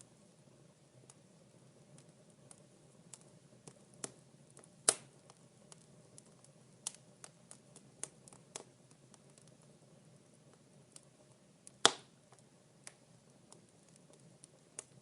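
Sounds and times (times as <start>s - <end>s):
wood fire crackling: 0.0s - 15.0s
loud pop from fire: 4.8s - 5.1s, 11.8s - 12.1s.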